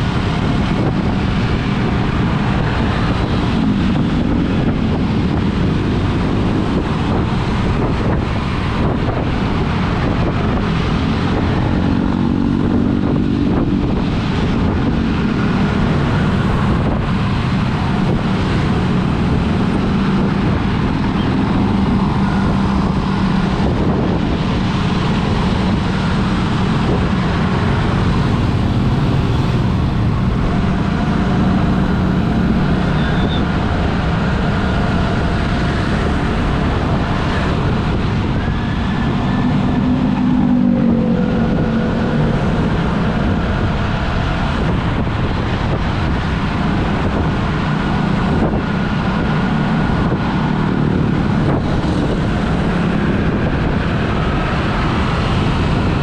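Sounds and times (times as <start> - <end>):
surrounding traffic: 0.0 - 56.0
tyre and wind noise: 0.0 - 56.0
vehicle engine running: 23.6 - 46.2.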